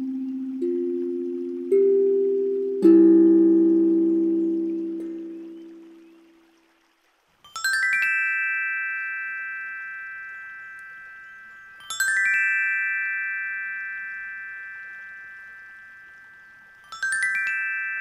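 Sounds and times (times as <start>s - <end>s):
metal chime bars ringing: 7.6s - 18.0s.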